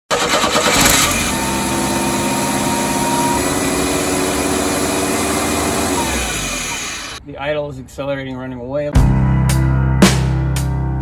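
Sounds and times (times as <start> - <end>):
car engine at high idle: 0.4 - 7.2.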